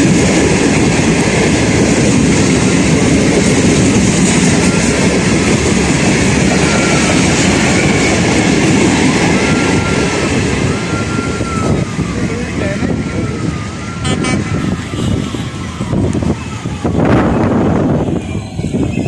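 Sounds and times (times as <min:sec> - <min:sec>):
train wheels rumbling on rails: 0:00.0 - 0:19.0
high wheel squeal: 0:06.4 - 0:12.0.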